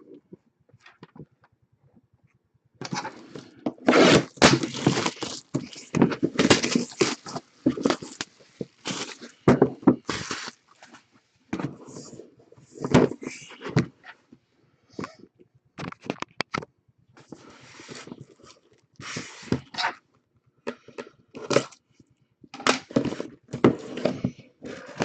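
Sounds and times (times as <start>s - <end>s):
packaging ripping and crinkling: 3.9s - 9.4s, 10.0s - 10.6s.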